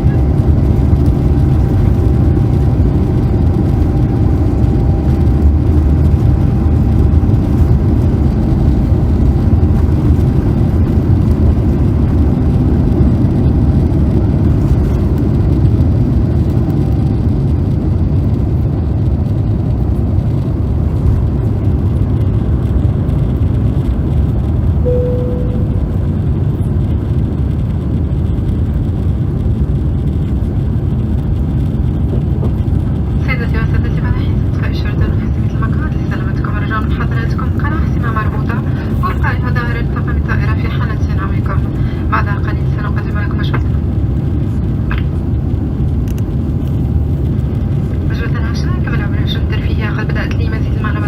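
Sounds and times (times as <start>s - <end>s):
jet engines low rumble: 0.0s - 51.0s
short single tone: 24.9s - 26.3s.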